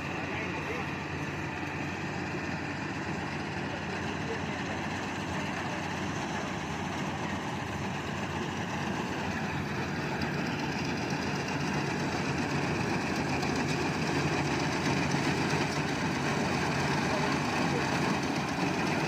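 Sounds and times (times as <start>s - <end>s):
harvester engine running: 0.0s - 19.0s.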